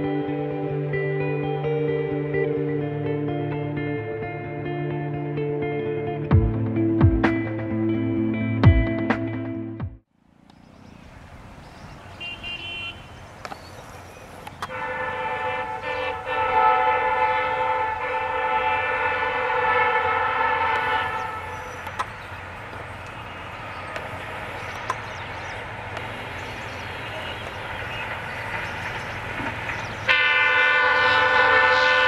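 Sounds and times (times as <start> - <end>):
train rumble: 14.4 - 32.0
train horn: 14.7 - 21.8, 30.0 - 32.0.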